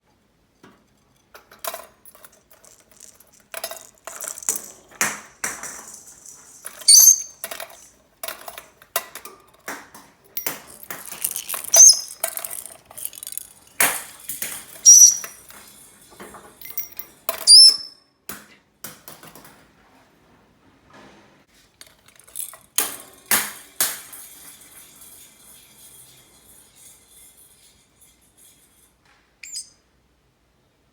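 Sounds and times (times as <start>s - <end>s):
toy balls clattering: 1.1s - 17.9s, 21.8s - 29.7s
parrot chirping: 6.8s - 7.4s, 11.3s - 12.4s, 14.8s - 15.4s, 17.5s - 17.9s, 29.4s - 29.8s.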